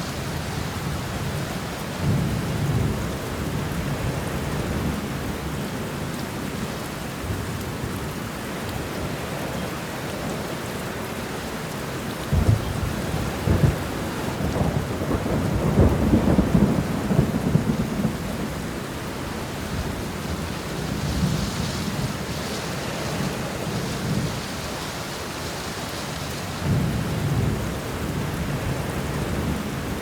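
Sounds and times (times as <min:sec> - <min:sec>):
thunder rumbling and crackling: 0:00.0 - 0:05.6, 0:12.2 - 0:30.0
heavy rain falling: 0:00.0 - 0:30.0.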